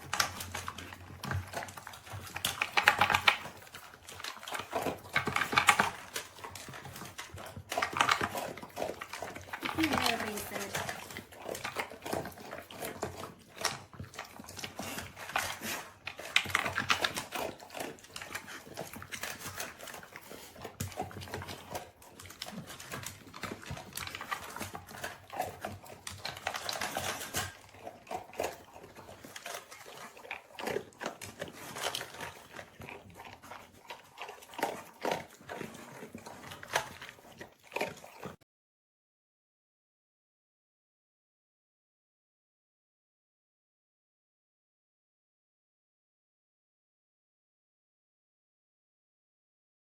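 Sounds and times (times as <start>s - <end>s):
food crunching against plastic bowl: 0.0s - 38.4s.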